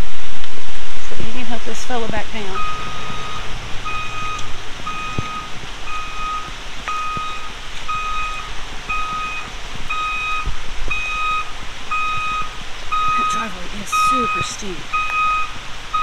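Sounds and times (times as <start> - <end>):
vehicle reversing alarm beeping: 2.5 - 16.0.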